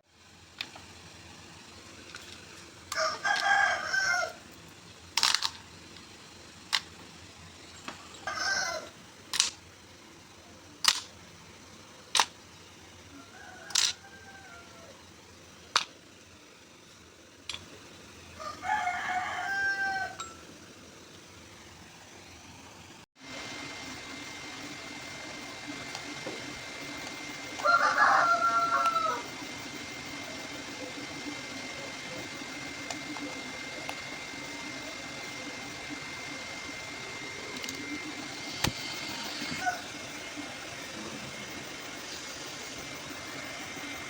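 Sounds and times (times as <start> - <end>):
steady high-pitched whine: 0.0 - 44.0
rooster crowing: 2.9 - 4.5, 8.2 - 9.0, 13.1 - 15.1, 18.3 - 20.4, 26.7 - 35.4, 36.0 - 44.0.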